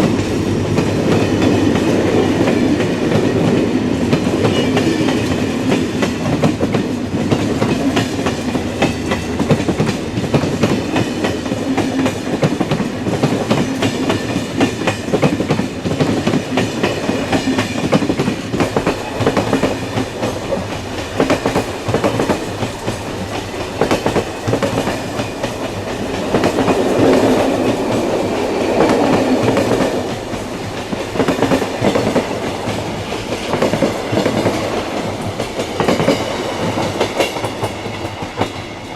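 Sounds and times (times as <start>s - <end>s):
train rumble: 0.0s - 38.9s
train wheels clicking on rails: 0.0s - 38.9s.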